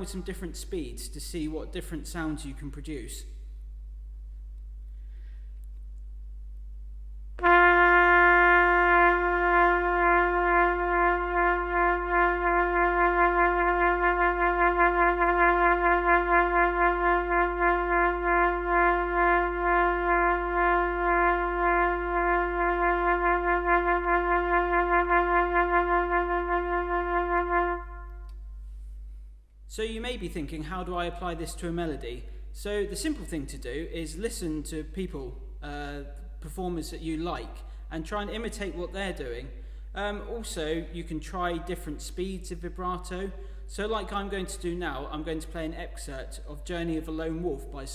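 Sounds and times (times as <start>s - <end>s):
brass instrument long note with vibrato: 7.4s - 28.5s.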